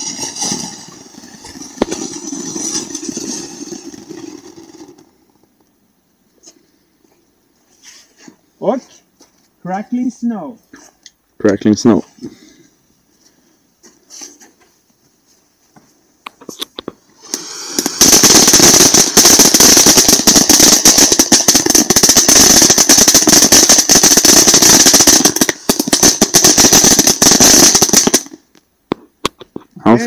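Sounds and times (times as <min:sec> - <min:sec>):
firework fountain hissing: 0:00.0 - 0:05.5, 0:17.0 - 0:28.5
firework fountain crackling: 0:00.0 - 0:05.7, 0:16.5 - 0:28.6.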